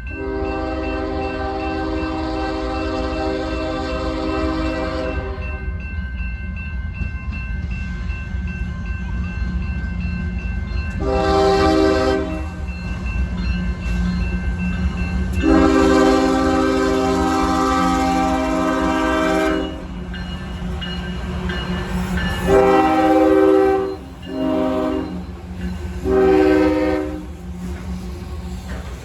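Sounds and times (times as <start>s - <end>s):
train rumbling: 0.0s - 29.0s
locomotive horn blasts: 0.1s - 5.6s, 11.0s - 12.6s, 15.4s - 20.0s, 22.4s - 25.2s, 26.0s - 27.4s.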